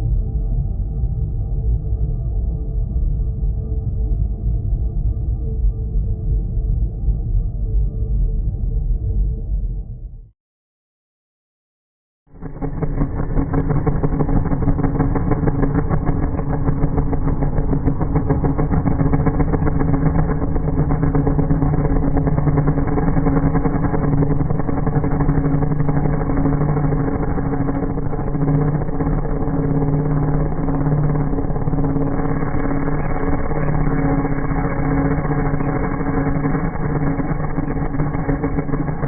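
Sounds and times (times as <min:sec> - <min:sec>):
low engine-like drone with rattling pulse: 0:12.3 - 0:39.0.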